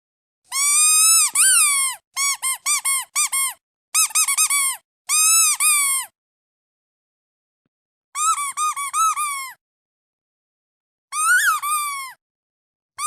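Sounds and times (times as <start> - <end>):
squeeze toy squeaking: 0.5 - 6.1, 8.2 - 9.6, 11.1 - 12.2.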